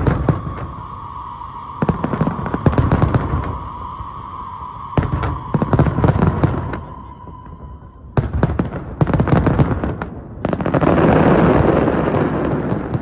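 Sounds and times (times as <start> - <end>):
steady high tone: 0.0 - 9.6
fireworks bangs and crackling: 0.0 - 13.0.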